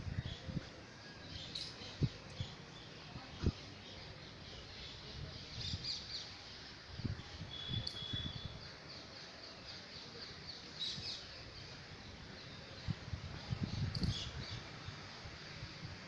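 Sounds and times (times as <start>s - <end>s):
small birds chirping: 1.3s - 15.6s
high bird whistle: 7.5s - 8.6s.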